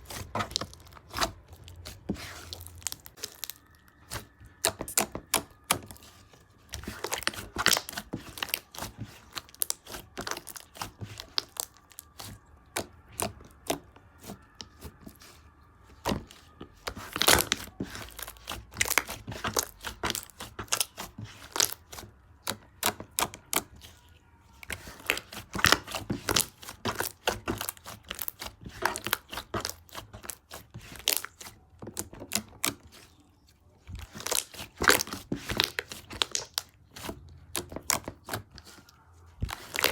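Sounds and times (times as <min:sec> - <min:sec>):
slime crackling and popping: 0:00.1 - 0:13.9, 0:16.0 - 0:24.0, 0:24.6 - 0:33.1, 0:33.9 - 0:38.8, 0:39.4 - 0:39.9.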